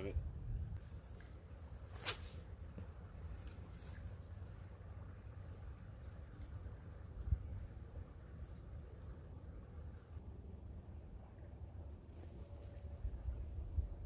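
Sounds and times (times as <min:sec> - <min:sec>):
low rumble of water or wind: 0:00.0 - 0:01.1, 0:04.2 - 0:14.0.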